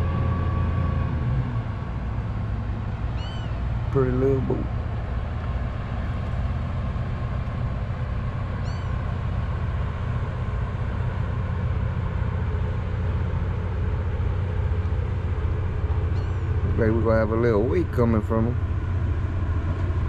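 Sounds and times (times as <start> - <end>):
boat engine rumble: 0.0 - 20.0.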